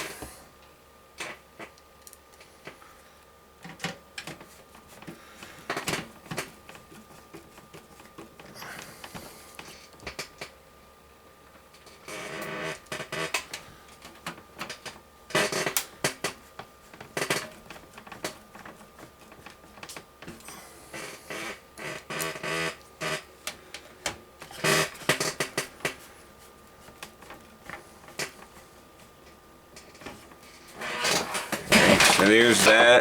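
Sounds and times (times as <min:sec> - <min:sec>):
metal and plastic parts rattling: 0:30.8 - 0:32.9.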